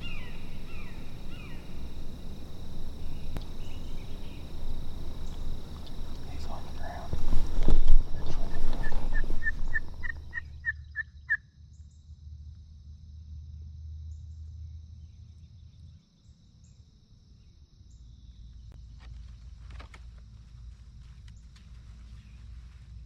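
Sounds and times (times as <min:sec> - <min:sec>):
steady high buzz: 0:00.0 - 0:10.6
turkey yelping: 0:08.2 - 0:11.4.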